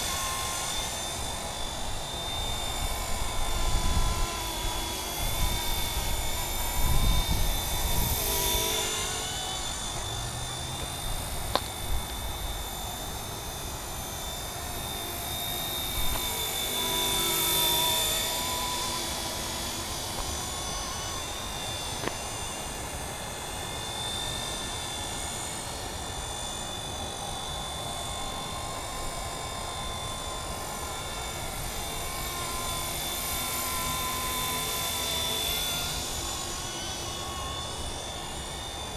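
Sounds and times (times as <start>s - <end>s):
model helicopter whine: 0.0s - 38.9s.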